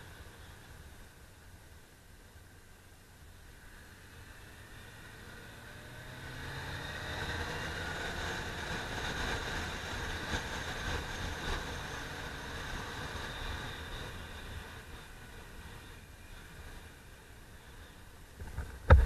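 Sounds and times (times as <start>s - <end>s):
motorcycle engine accelerating: 3.8s - 15.4s.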